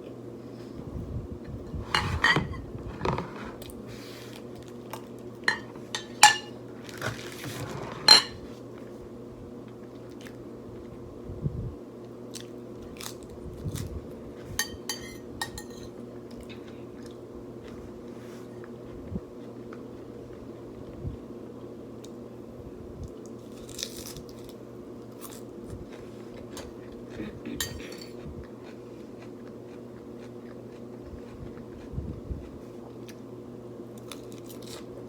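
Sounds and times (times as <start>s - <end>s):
cutlery clinking on dishes: 5.5s - 6.5s, 8.1s - 8.4s, 14.6s - 15.9s, 27.6s - 28.2s
chewing food: 25.2s - 33.3s.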